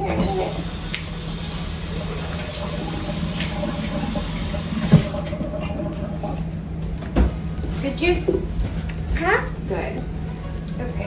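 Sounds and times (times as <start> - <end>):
tap running into sink: 0.0 - 7.4.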